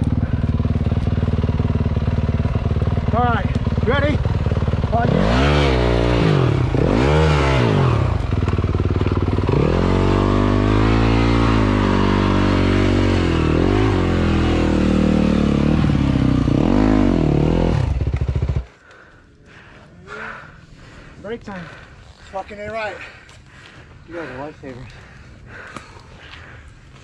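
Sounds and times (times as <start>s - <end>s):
dirt bike engine revving: 0.0s - 18.7s.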